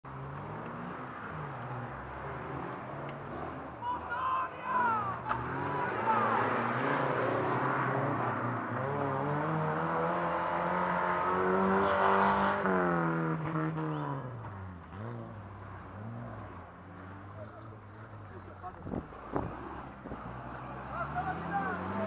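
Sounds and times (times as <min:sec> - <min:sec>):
off-road engine revving in mud: 0:04.7 - 0:22.0.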